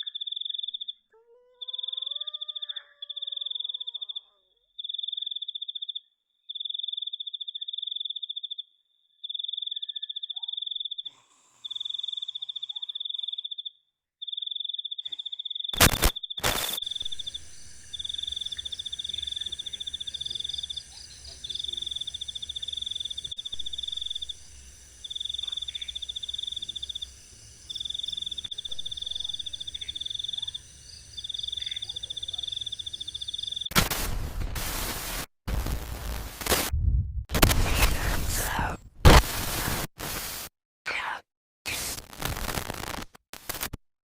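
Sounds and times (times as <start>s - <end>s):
cricket trilling: 0.0s - 33.7s
sharp loud cracks: 15.8s - 17.2s, 33.7s - 36.7s, 37.3s - 39.8s
steady hiss: 15.8s - 36.7s, 37.4s - 40.5s
faint wavering drawn-out call: 16.8s - 33.7s
low hum: 16.8s - 34.6s, 35.5s - 38.8s.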